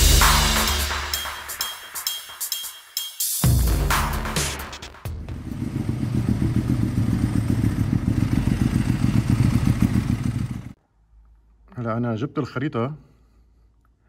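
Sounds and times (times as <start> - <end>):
engine running with even pulsing: 5.2 - 10.8.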